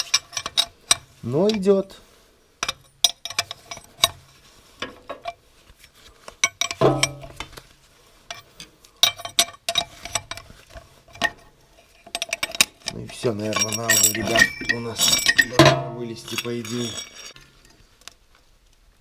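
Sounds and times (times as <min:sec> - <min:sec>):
metallic clicks and clinks: 0:02.6 - 0:04.2, 0:12.0 - 0:17.8.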